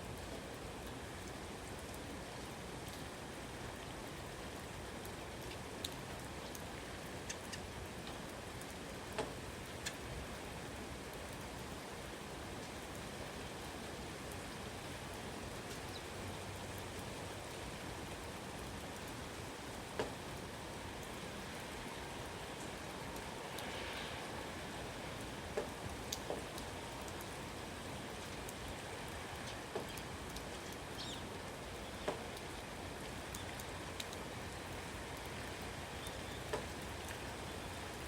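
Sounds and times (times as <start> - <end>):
steady rain falling: 0.0 - 38.0
single raindrops landing close: 25.4 - 32.6.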